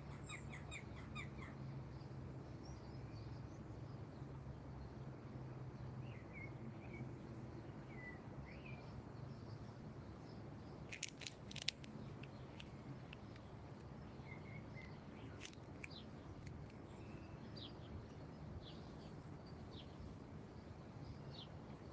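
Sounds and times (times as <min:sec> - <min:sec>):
small birds chirping: 0:00.0 - 0:05.0, 0:05.8 - 0:21.9
sharp clicks: 0:10.9 - 0:13.9.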